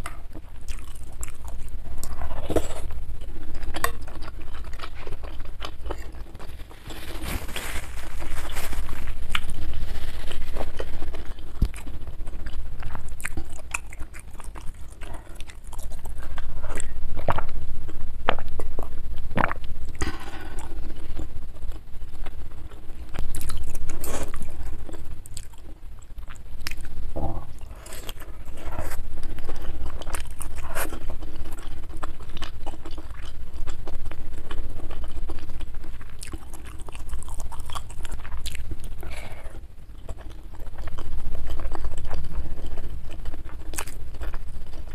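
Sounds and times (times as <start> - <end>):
chewing and biting: 0.0 - 44.9.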